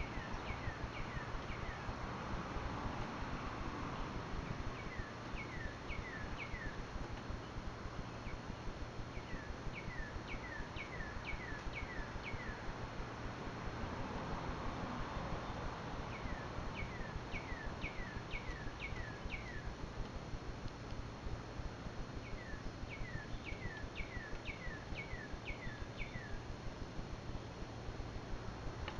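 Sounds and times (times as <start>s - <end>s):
songbird whistling: 0.0s - 1.9s, 4.8s - 6.8s, 9.2s - 12.6s, 16.1s - 19.7s, 22.2s - 26.4s
low outdoor rumble: 0.0s - 28.9s.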